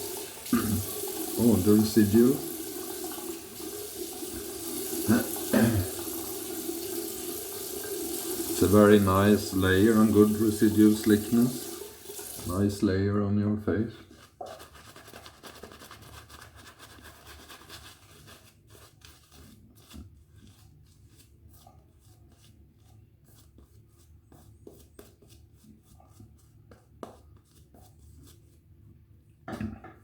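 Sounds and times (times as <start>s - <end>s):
razor scratching on lathered face: 14.1s - 28.6s.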